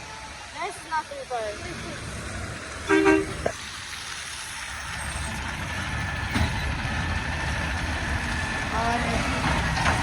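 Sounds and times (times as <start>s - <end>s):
truck engines rumbling: 0.0s - 10.0s
vehicle horn honk: 2.9s - 3.5s.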